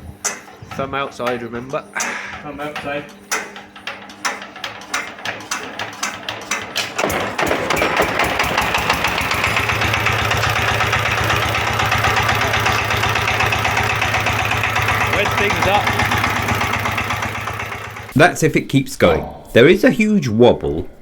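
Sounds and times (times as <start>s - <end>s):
diesel engine hand-crank clicking: 0.0s - 18.2s
diesel engine running: 4.2s - 18.2s.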